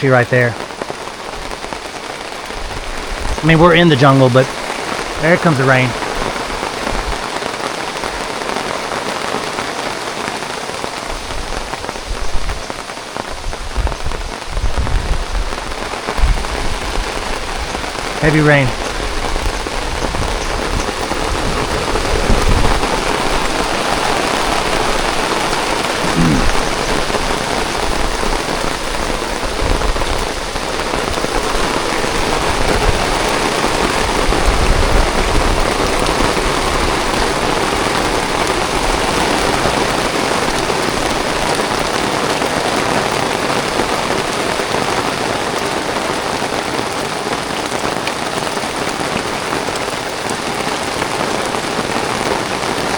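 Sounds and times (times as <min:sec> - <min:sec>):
heavy rain falling: 0:00.0 - 0:52.9
low rumbling: 0:18.7 - 0:28.4.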